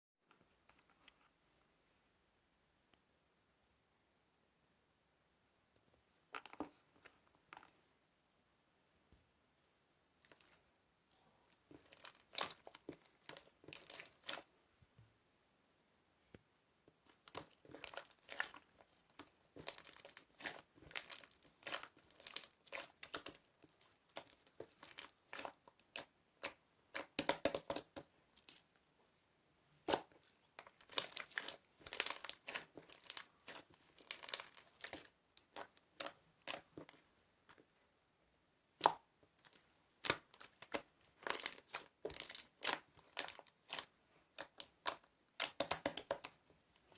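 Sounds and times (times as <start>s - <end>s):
crinkling and crackling: 10.2s - 14.5s, 16.9s - 28.8s, 29.7s - 37.8s, 38.8s - 46.9s.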